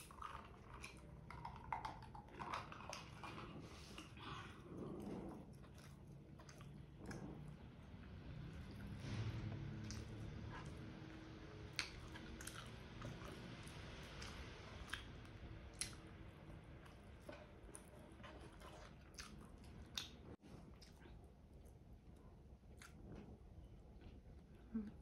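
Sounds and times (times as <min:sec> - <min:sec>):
faint chewing: 0:00.0 - 0:25.0
lip smacks: 0:11.6 - 0:13.4, 0:14.2 - 0:16.2, 0:18.5 - 0:21.2.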